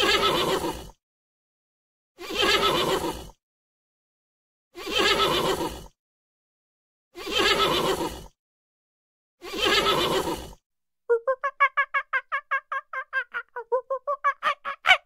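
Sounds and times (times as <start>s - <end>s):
fast short pitched calls: 11.1s - 15.0s.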